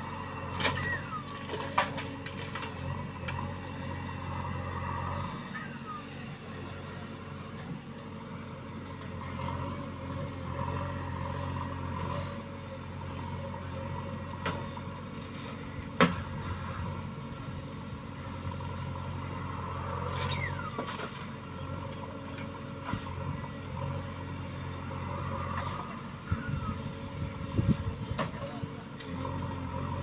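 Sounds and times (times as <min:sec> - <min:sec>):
diesel machinery humming: 0:00.0 - 0:30.0
short falling squeaks: 0:00.6 - 0:01.5, 0:20.1 - 0:20.8.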